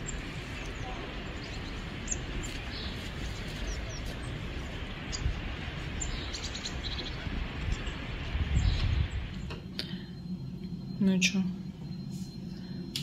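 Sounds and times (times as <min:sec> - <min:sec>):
low outdoor rumble: 0:00.0 - 0:13.0
small birds chirping: 0:00.0 - 0:13.0.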